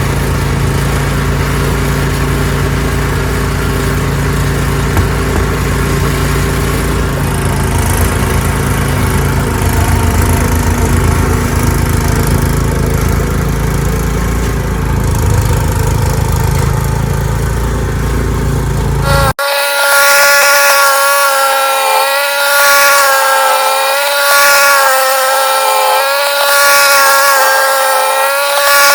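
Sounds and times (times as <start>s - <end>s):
snowblower engine running: 0.0s - 28.9s.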